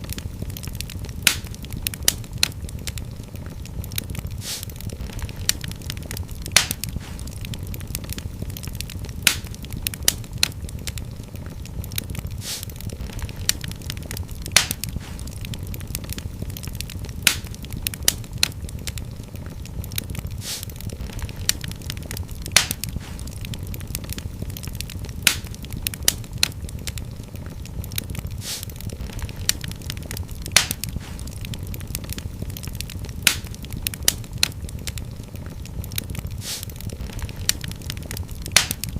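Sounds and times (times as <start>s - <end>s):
fire crackling in fireplace: 0.0s - 38.9s
low rumble of flames: 0.0s - 38.9s
sharp fire pops: 0.0s - 38.9s
brief hiss: 4.4s - 4.7s, 12.4s - 12.7s, 20.4s - 20.7s, 28.4s - 28.7s, 36.4s - 36.7s.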